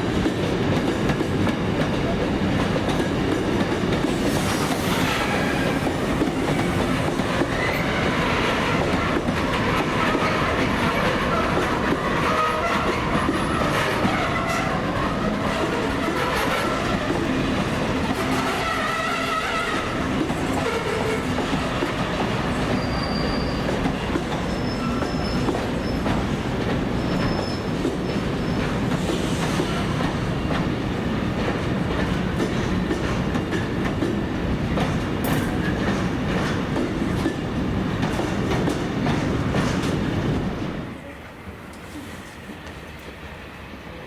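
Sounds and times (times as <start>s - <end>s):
train wheels clattering over rails: 0.0s - 40.8s
wheel squeals: 22.5s - 26.1s, 27.0s - 28.7s.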